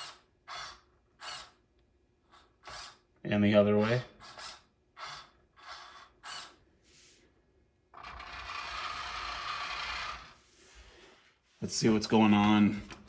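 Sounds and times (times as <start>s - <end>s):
electric motor gearbox whining: 8.0s - 10.4s.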